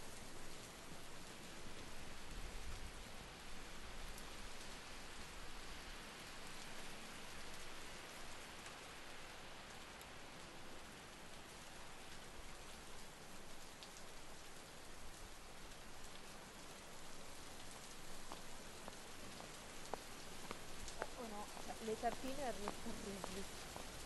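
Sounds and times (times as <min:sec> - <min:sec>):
soft outdoor hiss: 0:00.0 - 0:24.0
faint ticks: 0:13.6 - 0:24.0.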